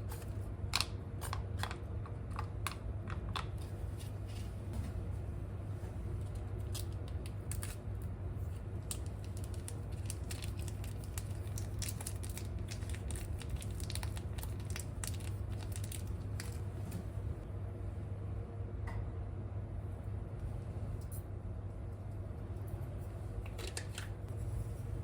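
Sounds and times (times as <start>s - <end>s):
range hood fan humming: 0.0s - 25.0s
quick irregular crackles and clicks: 8.8s - 16.6s.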